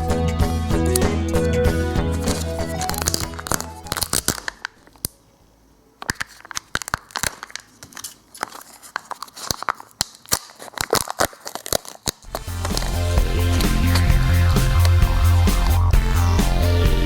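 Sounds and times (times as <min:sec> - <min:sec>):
foil wrapper crinkling and tearing: 0:02.1 - 0:05.1, 0:06.0 - 0:15.0.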